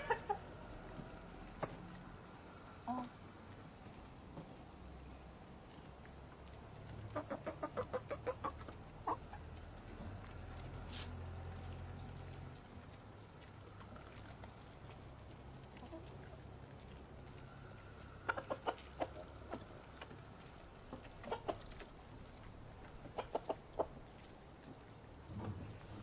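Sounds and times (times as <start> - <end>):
hens clucking: 0.0 - 1.2, 6.8 - 10.8, 11.9 - 24.8
low background hum: 0.0 - 26.0.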